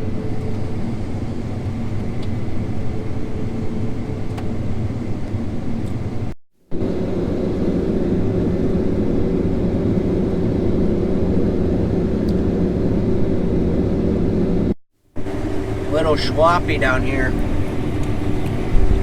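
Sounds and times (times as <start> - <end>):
combine harvester running: 0.0 - 19.0.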